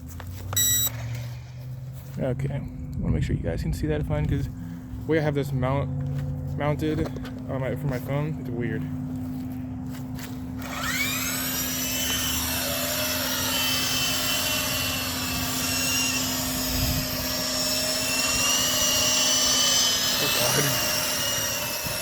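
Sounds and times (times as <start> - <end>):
rc helicopter motor whine: 0.5 - 1.6, 10.4 - 22.0.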